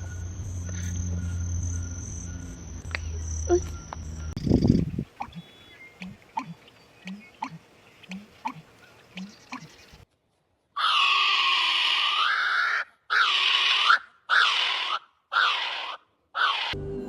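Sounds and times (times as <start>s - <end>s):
bird calls: 0.0s - 10.0s.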